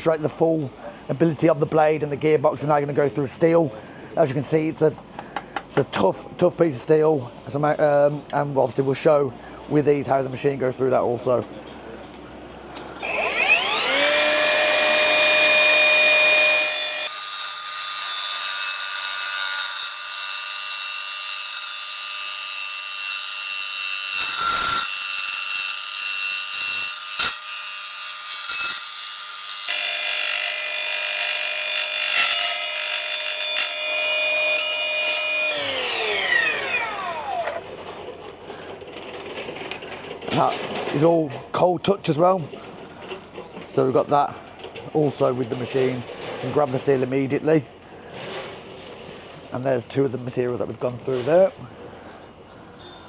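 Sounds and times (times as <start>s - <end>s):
saw motor whine: 12.9s - 37.7s
blade grinding through steel: 13.0s - 37.6s.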